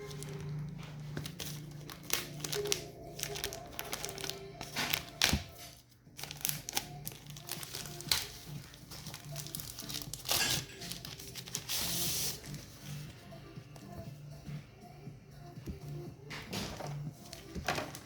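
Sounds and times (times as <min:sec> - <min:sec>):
packaging tearing: 0:00.0 - 0:12.5
plastic packaging crinkling: 0:00.0 - 0:12.6, 0:17.2 - 0:18.0
soft background music: 0:00.0 - 0:18.0.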